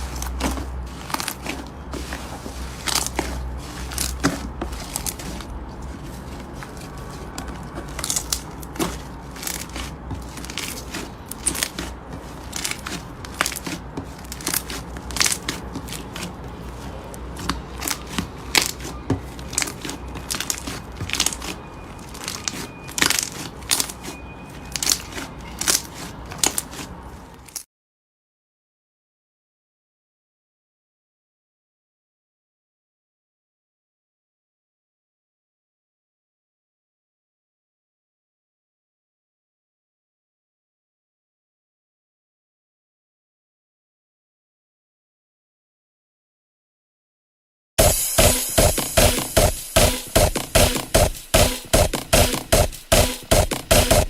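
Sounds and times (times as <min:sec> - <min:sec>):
slime crackling and popping: 0:06.1 - 0:24.1, 0:24.7 - 0:26.9.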